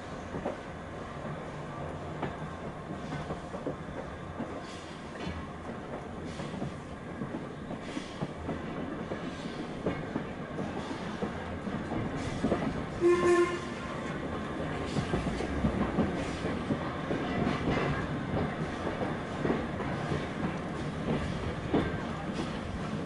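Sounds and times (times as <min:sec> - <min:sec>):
train wheels clicking over rail joints: 0:00.3 - 0:23.0
locomotive whistle blast: 0:13.0 - 0:13.8.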